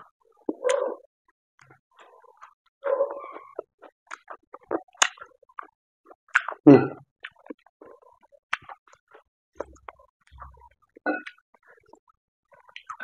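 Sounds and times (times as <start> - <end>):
wet mouth chewing smacks: 3.2 - 6.6, 7.2 - 13.0.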